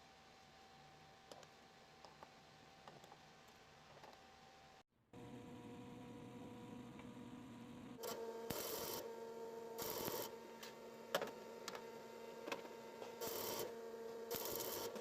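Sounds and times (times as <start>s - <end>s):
small electric motor humming: 8.0s - 10.4s, 13.2s - 15.0s.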